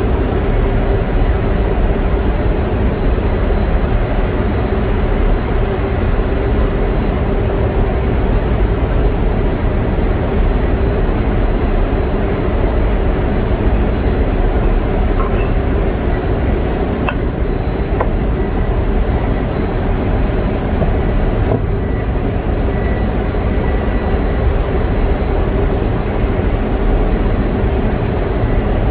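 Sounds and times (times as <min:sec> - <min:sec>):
generator engine drone: 0:00.0 - 0:28.9.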